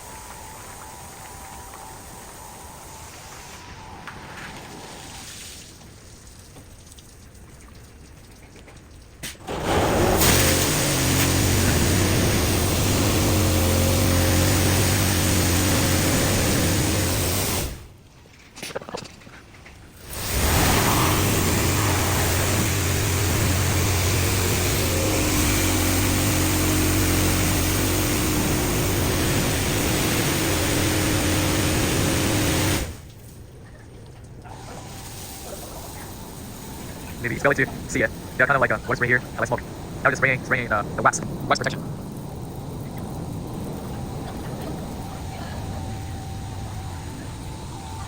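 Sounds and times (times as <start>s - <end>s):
high-pressure water jets hissing: 0.0s - 6.0s, 9.3s - 17.9s, 20.0s - 33.4s, 34.4s - 48.0s
steady low hum: 9.4s - 18.1s, 19.9s - 48.0s.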